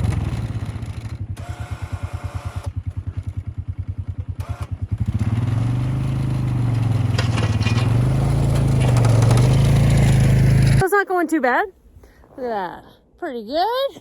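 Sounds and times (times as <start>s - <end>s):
plow scraping snow: 0.0s - 10.8s
vehicle engine chugging: 0.0s - 10.8s.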